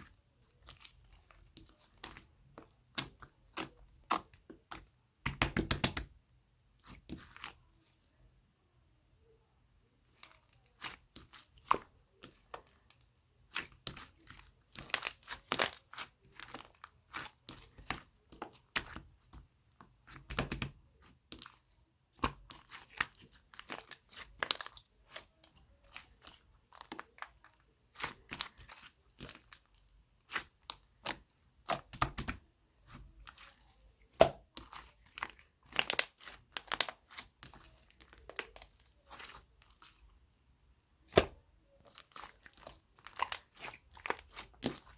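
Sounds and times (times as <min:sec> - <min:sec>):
slime crackling and popping: 0:10.3 - 0:19.0, 0:22.2 - 0:29.6, 0:33.0 - 0:40.0, 0:41.1 - 0:44.9.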